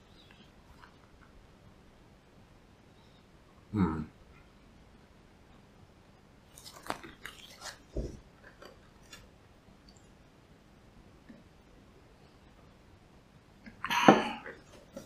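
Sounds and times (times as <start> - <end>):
person chewing: 6.5 - 7.9.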